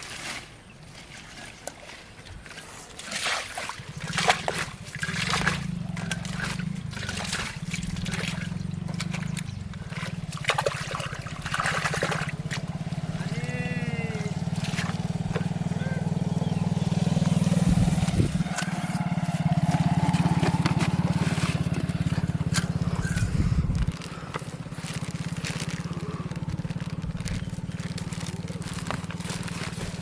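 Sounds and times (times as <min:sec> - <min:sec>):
small engine running: 0:03.7 - 0:30.0
clicks and crackles: 0:23.8 - 0:30.0.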